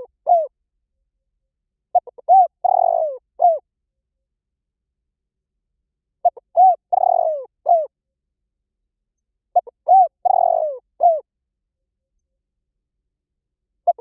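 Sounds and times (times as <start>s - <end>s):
dove cooing: 0.0s - 0.6s, 1.9s - 3.6s, 6.2s - 7.9s, 9.5s - 11.3s.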